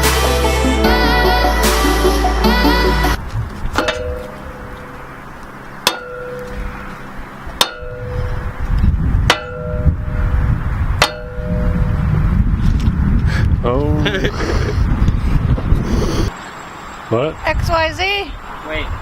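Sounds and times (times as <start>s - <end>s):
music: 0.0s - 3.2s
ringing metallic clangs: 3.7s - 8.6s, 9.3s - 10.4s, 11.0s - 11.9s
low rumble: 6.1s - 16.3s.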